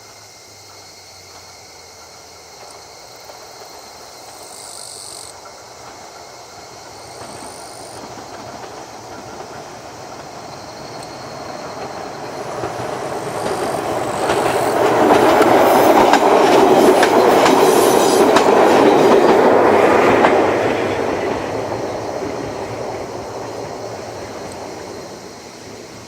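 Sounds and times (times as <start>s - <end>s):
electric train passing: 0.0s - 26.0s
wheels clicking over rail joints: 0.6s - 26.0s.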